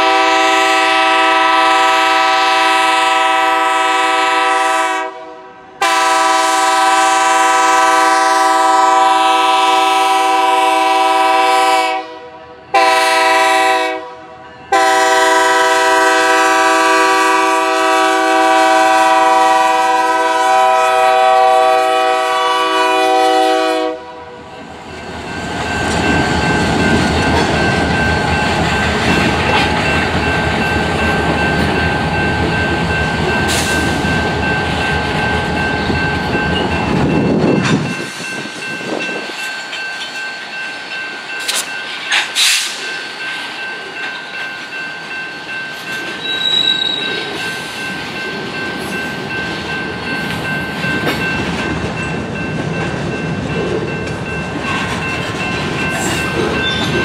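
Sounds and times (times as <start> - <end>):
train wheels on rail: 0.0 - 12.0, 12.6 - 57.0
locomotive air horn blast: 0.0 - 24.4
crossing bell ringing: 14.3 - 57.0.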